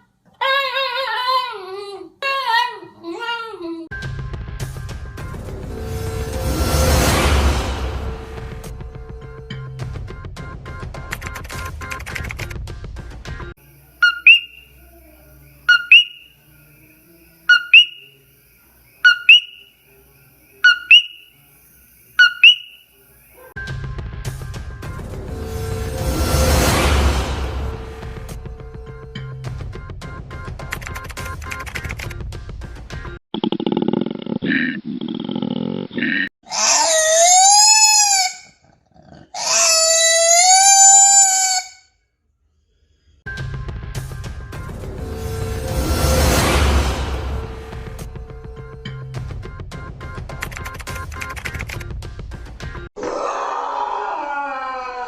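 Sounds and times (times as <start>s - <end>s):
music: 3.9s - 13.5s, 23.6s - 33.2s, 43.2s - 52.9s
animal whistled two-note call: 14.0s - 14.8s, 15.7s - 16.4s, 17.5s - 18.2s, 19.0s - 19.7s, 20.6s - 21.3s, 22.2s - 22.8s
animal's long high-pitched call: 14.0s - 15.1s, 15.7s - 16.3s, 17.5s - 18.1s, 19.0s - 19.7s, 20.6s - 21.3s, 22.2s - 22.8s, 36.5s - 38.6s, 39.4s - 41.9s, 53.1s - 55.0s.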